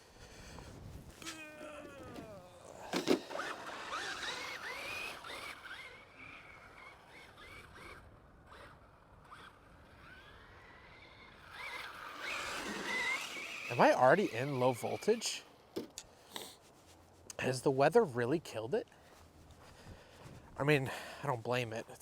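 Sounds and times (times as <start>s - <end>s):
electric motor whining: 0.6s - 15.9s
tyres scraping on icy concrete: 1.1s - 5.9s, 11.4s - 16.9s.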